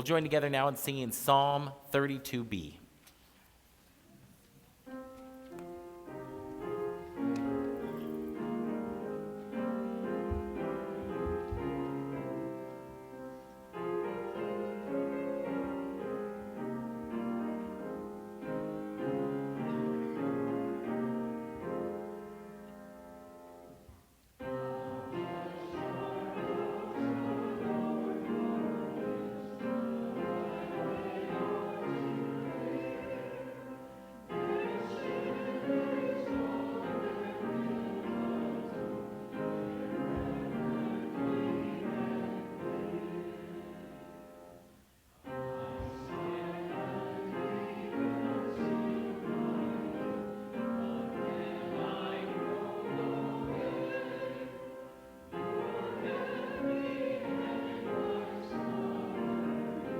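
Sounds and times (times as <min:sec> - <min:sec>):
keyboard accompaniment: 0:04.8 - 0:59.9
congregation singing a psalm: 0:05.2 - 0:59.9.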